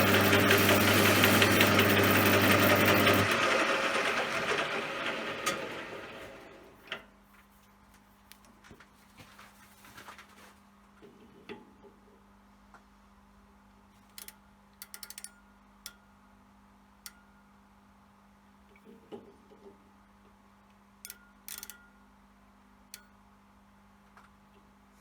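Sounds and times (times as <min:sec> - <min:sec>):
lathe running and winding down: 0:00.0 - 0:06.7.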